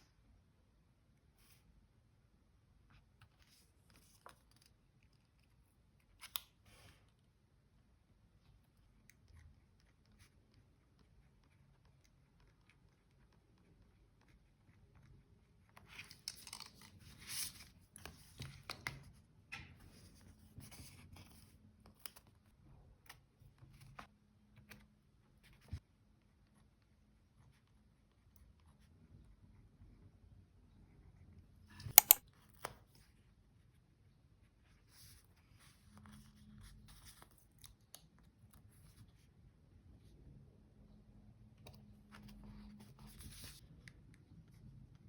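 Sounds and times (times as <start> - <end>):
sharp click: 31.9 - 32.2.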